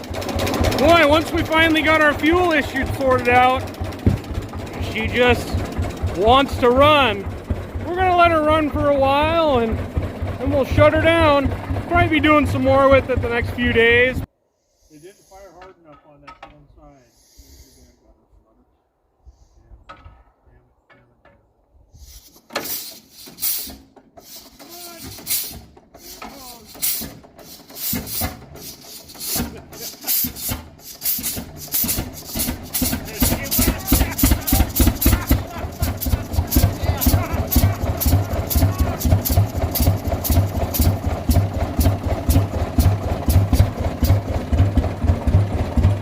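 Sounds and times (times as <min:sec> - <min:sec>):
tractor engine exhaust puffs: 0:00.0 - 0:15.8, 0:21.5 - 0:46.0
engine low rumble: 0:00.0 - 0:46.0
sharp engine tick: 0:24.3 - 0:44.4.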